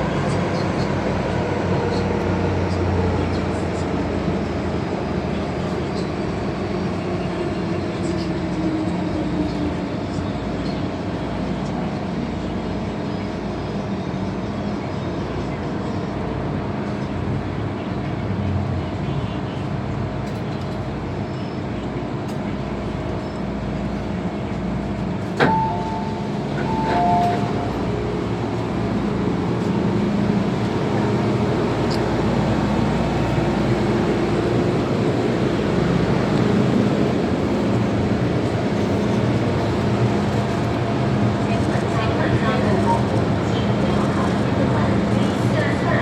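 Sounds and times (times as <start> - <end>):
wheels rumbling on rail: 0.0 - 46.0
short higher tones: 25.4 - 28.4.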